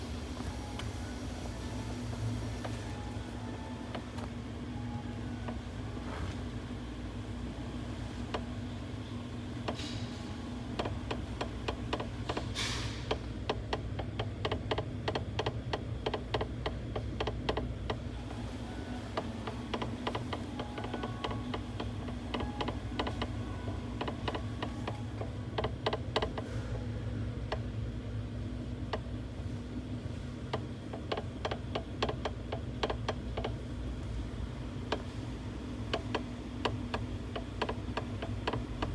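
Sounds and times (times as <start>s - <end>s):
steady low hum: 0.0s - 38.9s
steering clicking and creaking: 10.7s - 26.5s, 30.4s - 34.0s, 35.7s - 38.9s.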